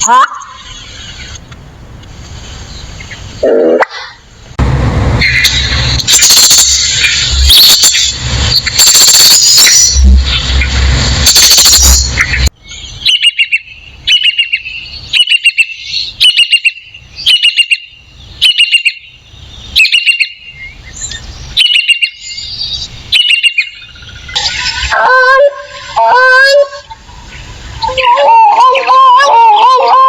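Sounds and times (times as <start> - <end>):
bird chirping calls: 2.6 - 4.2, 5.2 - 30.0
loud harsh noise: 3.3 - 12.6.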